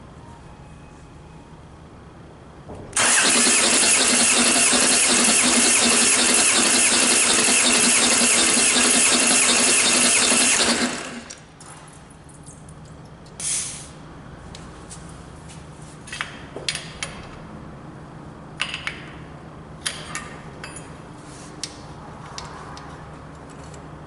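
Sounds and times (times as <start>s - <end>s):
short hiss: 13.4s - 14.0s.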